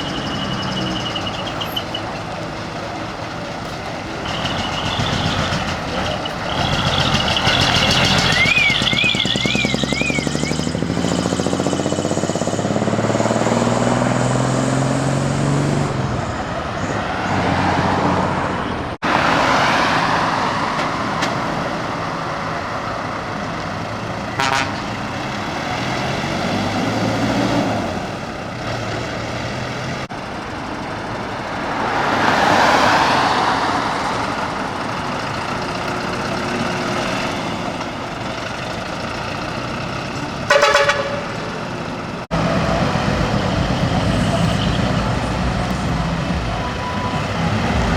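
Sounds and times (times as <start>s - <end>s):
truck diesel engines revving: 0.0s - 47.9s
warbling horn tone: 24.4s - 24.9s, 40.5s - 41.4s
short horn blast: 24.4s - 25.0s, 40.5s - 41.6s.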